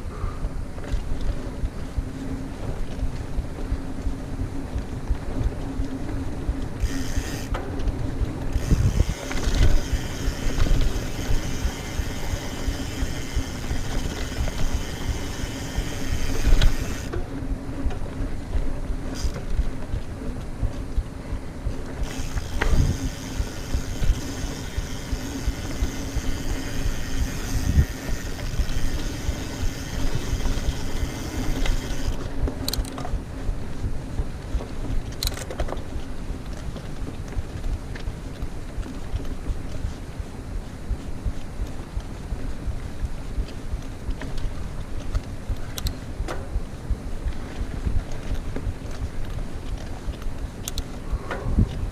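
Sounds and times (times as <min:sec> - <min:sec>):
wind on microphone: 0:00.0 - 0:51.9
bike tyres rumbling on dirt: 0:00.1 - 0:51.9
bike knocks and rattles: 0:04.7 - 0:21.0, 0:43.4 - 0:51.9
freehub buzz: 0:06.8 - 0:07.6, 0:08.5 - 0:17.1, 0:22.0 - 0:32.2.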